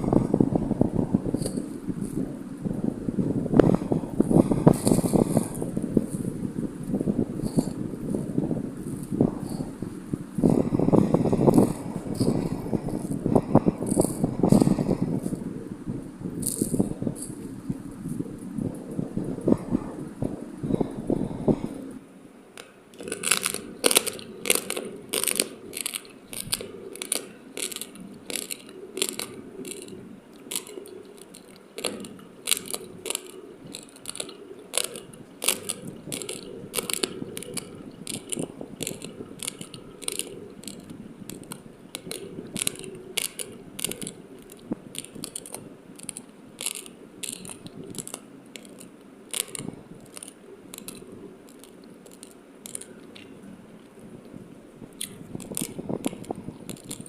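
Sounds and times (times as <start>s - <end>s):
crunching of chewed rice: 3.7s - 9.8s, 10.4s - 15.4s, 22.6s - 57.0s.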